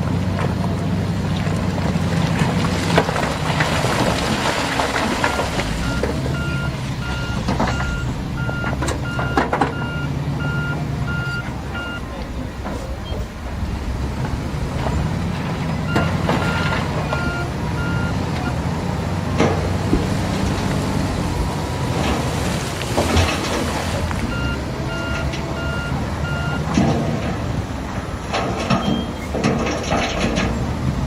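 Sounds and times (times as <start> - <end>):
diesel engine running: 0.0 - 31.0
reverse alarm beeping: 5.2 - 12.2, 15.9 - 18.6, 24.2 - 26.7.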